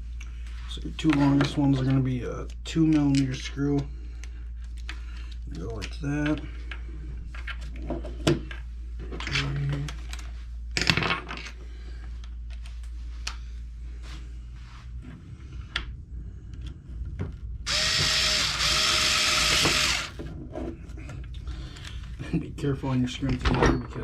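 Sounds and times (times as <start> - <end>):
electric screwdriver whine: 17.7 - 20.2.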